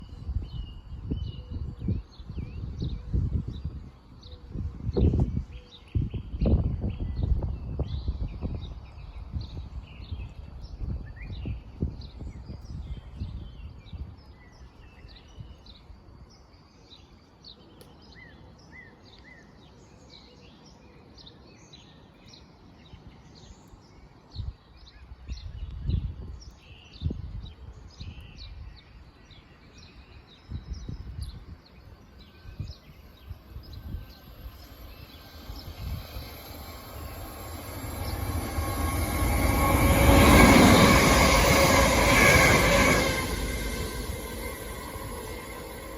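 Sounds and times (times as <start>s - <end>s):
birds chirping: 31.8s - 45.9s
electric train approaching: 31.8s - 45.9s
low rumbles: 33.4s - 45.9s.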